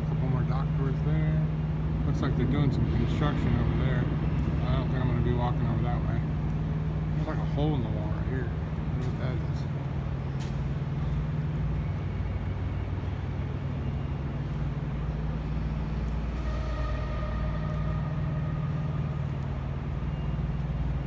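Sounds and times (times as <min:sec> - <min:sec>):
low mechanical drone: 0:00.0 - 0:21.0
faint high whine: 0:10.9 - 0:21.0.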